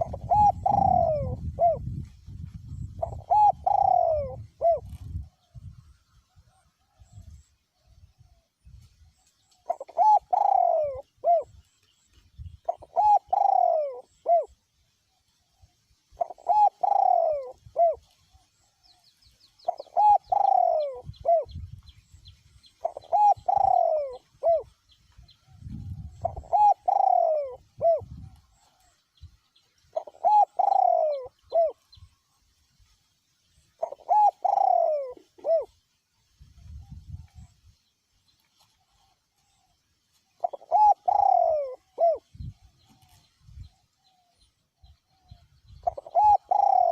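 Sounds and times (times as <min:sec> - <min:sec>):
dove cooing: 0:00.0 - 0:02.0, 0:02.7 - 0:05.6, 0:09.6 - 0:11.6, 0:12.6 - 0:14.6, 0:16.1 - 0:18.6, 0:19.6 - 0:21.6, 0:22.8 - 0:24.8, 0:25.5 - 0:29.0, 0:29.9 - 0:32.0, 0:33.8 - 0:35.8, 0:38.8 - 0:46.9.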